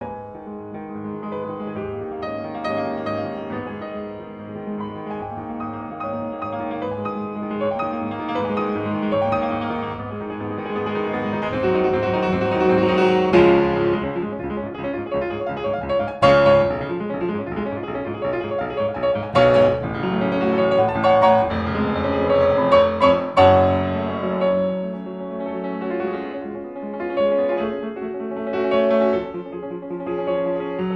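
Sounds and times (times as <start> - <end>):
piano music: 0.0 - 30.9.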